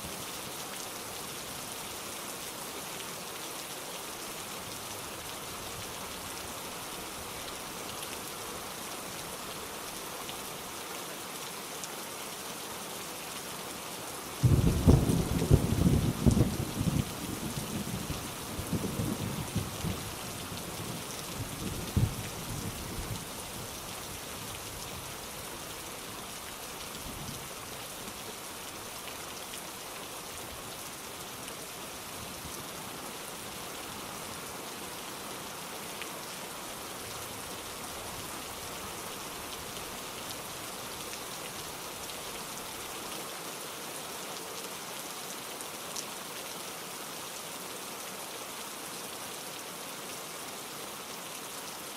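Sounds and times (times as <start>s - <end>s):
heavy rain falling: 0.0s - 51.9s
thunder rumbling: 14.4s - 17.1s.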